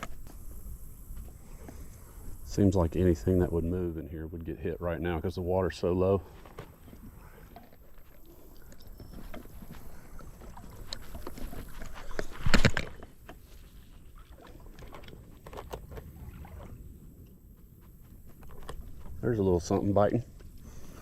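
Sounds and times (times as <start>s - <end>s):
creek water sloshing and splashing: 5.6s - 17.3s.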